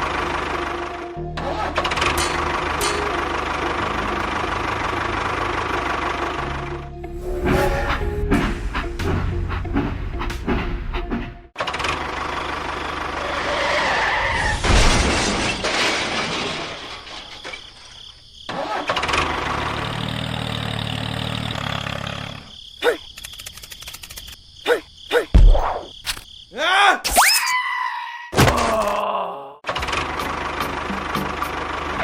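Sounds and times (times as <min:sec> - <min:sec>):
engine running: 0:00.0 - 0:10.6, 0:18.8 - 0:22.5, 0:29.7 - 0:32.0.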